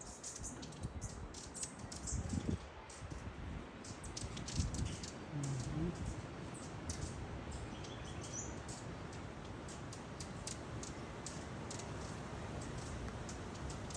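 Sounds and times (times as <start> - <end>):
outdoor background noise: 0.0 - 13.9
bird chirp: 3.8 - 11.9.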